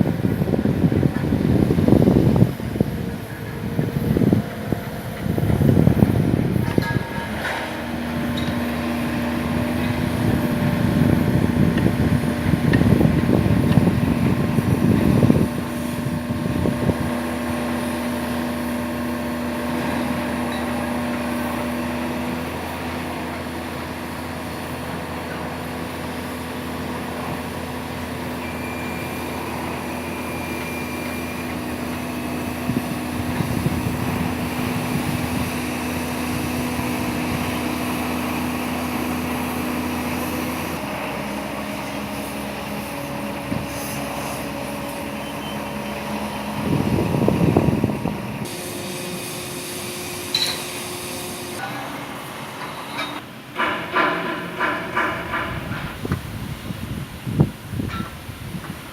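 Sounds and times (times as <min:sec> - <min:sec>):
rough rumbling: 0:00.0 - 0:17.4
steady engine hum: 0:00.0 - 0:58.9.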